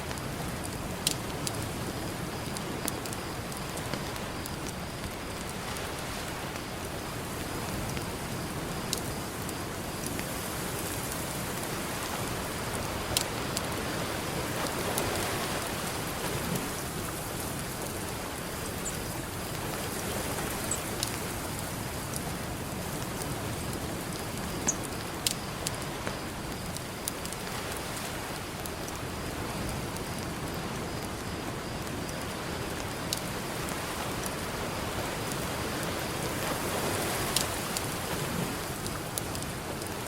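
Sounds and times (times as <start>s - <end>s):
campfire crackling and popping: 0.0s - 40.0s
ocean surf: 5.0s - 24.9s.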